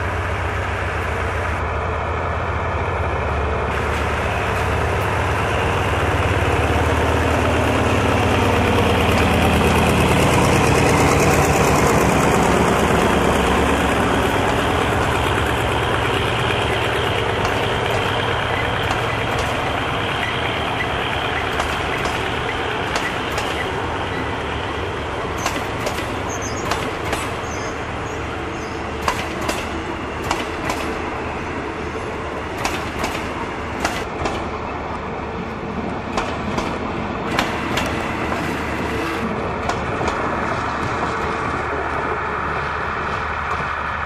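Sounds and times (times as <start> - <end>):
low train rumble: 0.0 - 44.0
wheels clunking over rail joints: 7.0 - 35.0.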